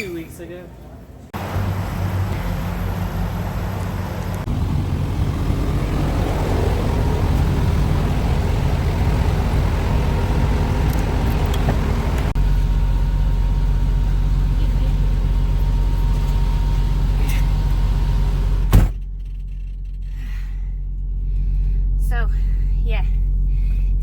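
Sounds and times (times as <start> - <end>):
road noise: 0.0 - 24.0
truck engine drone: 1.3 - 24.0.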